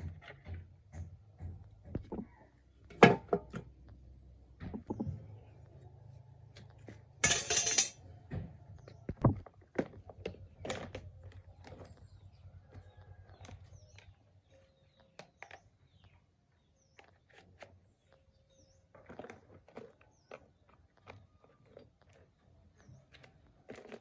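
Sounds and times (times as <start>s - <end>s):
metal parts and tools clinking: 7.2s - 8.0s.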